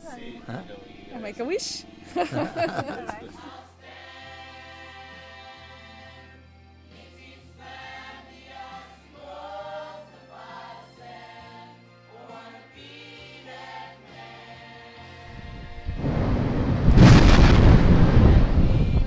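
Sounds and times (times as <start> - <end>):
choir singing: 0.0 - 19.0.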